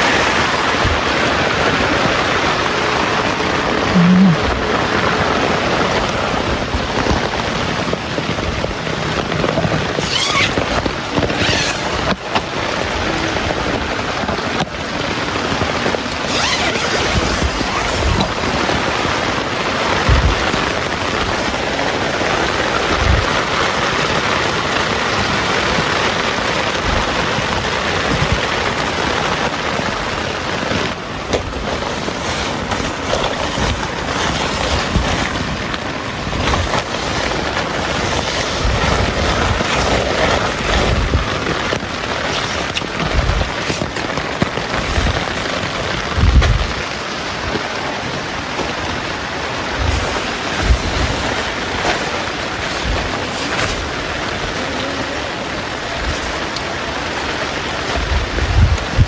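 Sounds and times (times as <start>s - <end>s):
heavy rain pouring: 0.0s - 59.0s
wind gusts: 0.0s - 59.0s
thumps on microphone: 20.0s - 20.7s.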